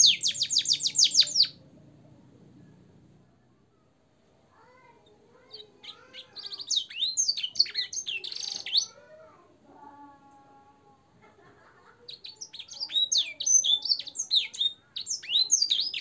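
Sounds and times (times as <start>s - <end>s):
canary singing: 0.0s - 1.7s, 4.7s - 9.1s, 11.9s - 16.0s.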